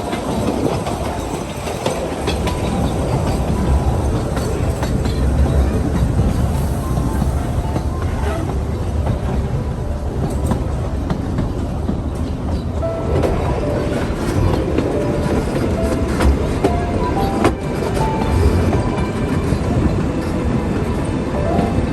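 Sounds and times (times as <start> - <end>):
wheels clicking over rails: 0.0 - 21.0
steam train low rumble: 0.0 - 21.9.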